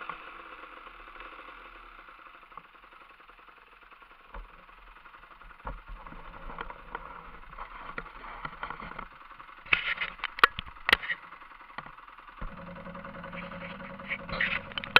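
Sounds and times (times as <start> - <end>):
two-stroke engine idling: 0.0 - 14.9
loud clicks and knocks: 11.8 - 14.9.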